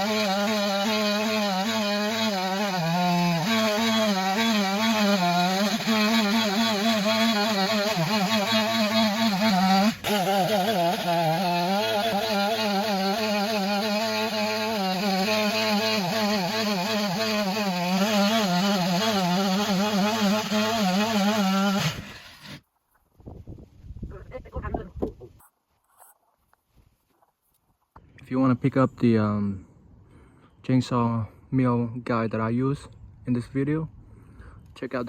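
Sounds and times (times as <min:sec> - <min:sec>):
chainsaw cutting a log: 0:00.0 - 0:22.6.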